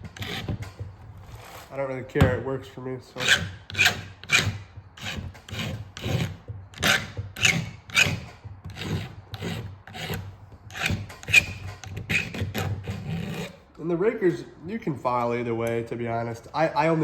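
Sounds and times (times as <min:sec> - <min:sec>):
file rasping on chainsaw chain: 0:00.0 - 0:00.7, 0:03.2 - 0:13.6.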